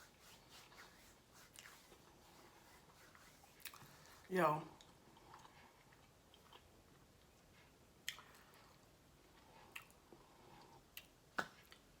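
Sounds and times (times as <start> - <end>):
faint chewing: 3.1 - 12.0.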